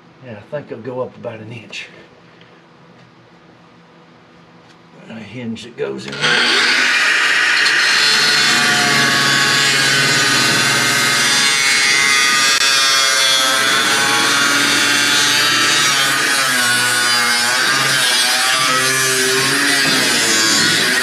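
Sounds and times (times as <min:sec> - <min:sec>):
power saw cutting steel: 0:06.1 - 0:21.0.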